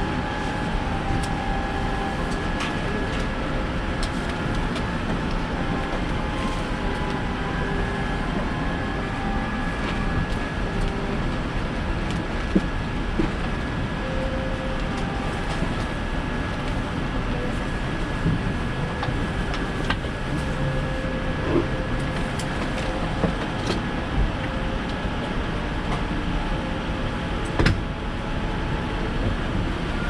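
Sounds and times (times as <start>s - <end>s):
airliner cabin noise: 0.0s - 30.0s.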